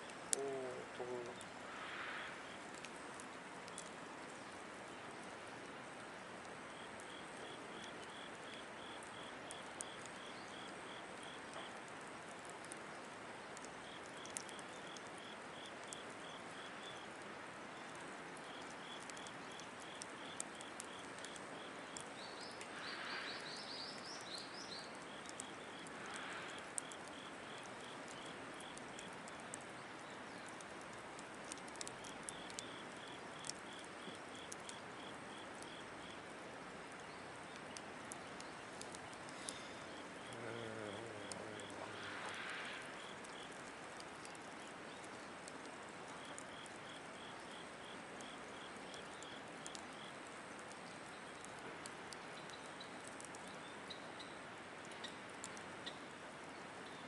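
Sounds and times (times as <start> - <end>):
insect chirping: 0.0 - 2.8, 6.7 - 11.8, 17.8 - 29.6, 31.5 - 36.3, 38.4 - 51.5
firewood crackling and popping: 0.0 - 57.0.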